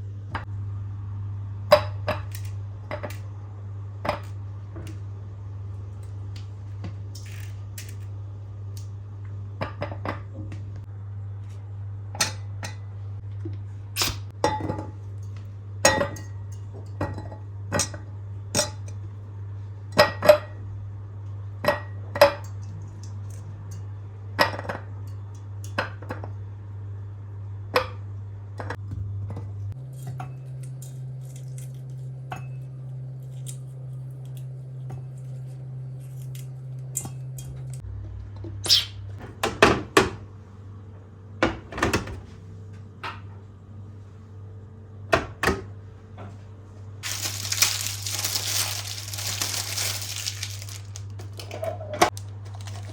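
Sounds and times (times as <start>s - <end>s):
steady low hum: 0.0s - 25.7s.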